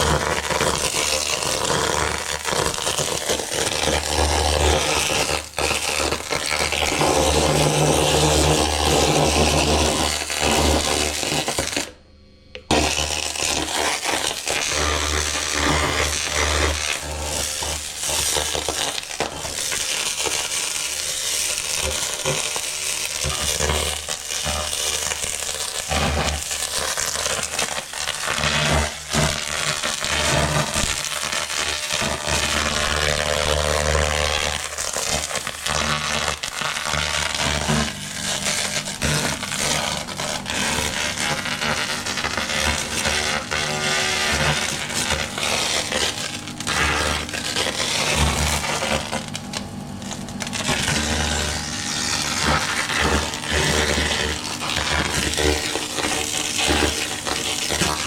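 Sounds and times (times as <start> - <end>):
laser cleaning crackling hiss: 0.0 - 12.0, 12.6 - 58.0
low machine hum: 4.1 - 18.0, 37.3 - 58.0.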